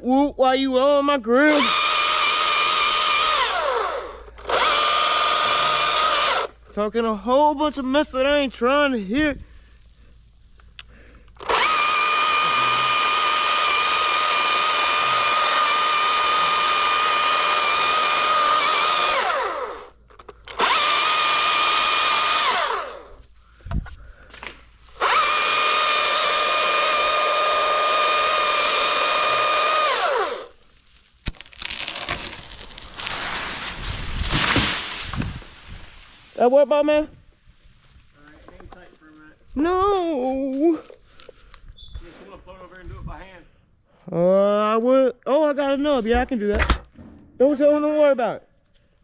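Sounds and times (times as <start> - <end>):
chainsaw running at full speed: 1.5 - 6.6, 11.4 - 19.9, 20.6 - 23.2, 25.0 - 30.6.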